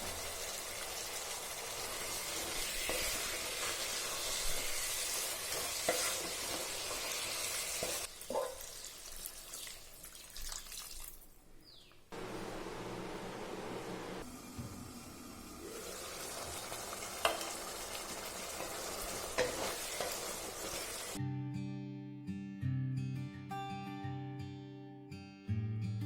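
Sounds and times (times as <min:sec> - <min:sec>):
food sizzling in a frying pan: 0:00.0 - 0:10.0, 0:12.2 - 0:21.2
spoon scraping a pan: 0:02.3 - 0:08.8, 0:18.5 - 0:21.2.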